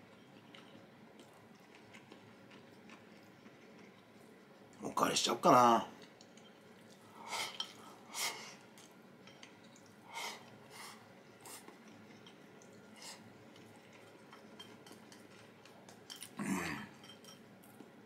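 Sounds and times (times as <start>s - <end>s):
person chewing: 0.4s - 4.3s.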